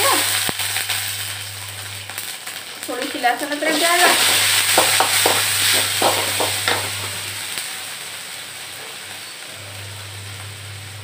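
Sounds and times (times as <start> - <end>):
onions sizzling in oil: 0.0 - 11.0
spatula scraping and stirring: 3.7 - 7.2.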